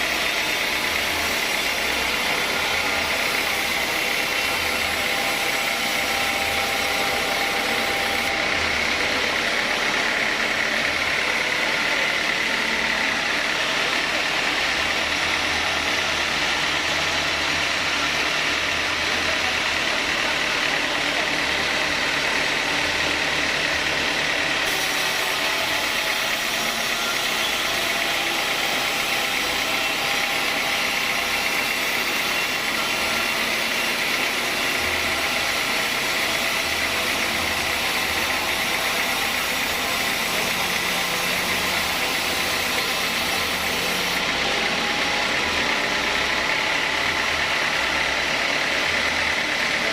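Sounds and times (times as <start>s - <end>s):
sawmill machinery running: 0.0s - 49.9s.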